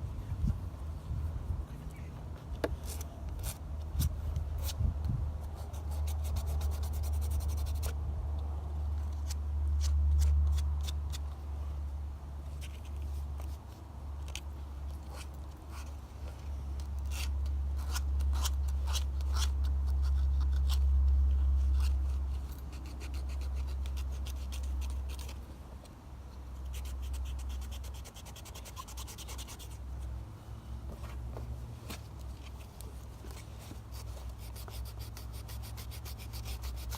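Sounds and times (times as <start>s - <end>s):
steady low rumble: 0.0s - 25.6s
sandpaper scratching metal: 5.6s - 7.9s, 26.7s - 29.8s, 33.9s - 36.9s.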